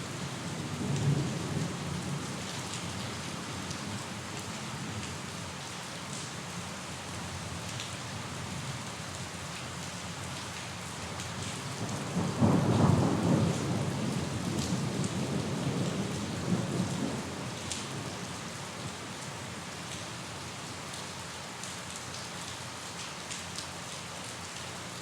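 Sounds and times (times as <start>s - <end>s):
steady rain falling: 0.0s - 25.0s
thunder rumble: 12.0s - 17.5s.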